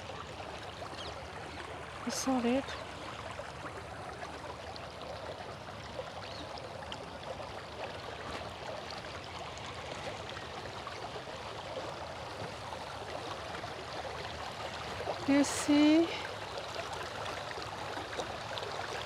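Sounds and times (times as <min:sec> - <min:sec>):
river water flowing: 0:00.0 - 0:19.0.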